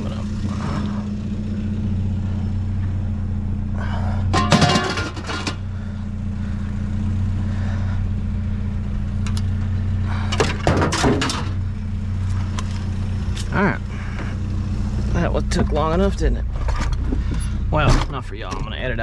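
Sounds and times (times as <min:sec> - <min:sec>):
truck engine idling: 0:00.0 - 0:19.0
clattering engine knocks: 0:04.2 - 0:06.6, 0:09.1 - 0:14.5, 0:15.2 - 0:19.0.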